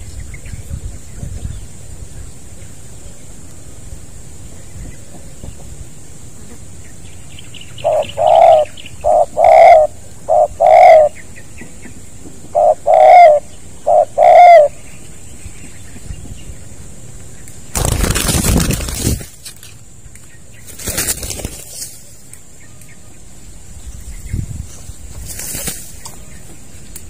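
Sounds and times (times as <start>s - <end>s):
dove cooing: 7.8s - 11.2s, 12.5s - 14.7s.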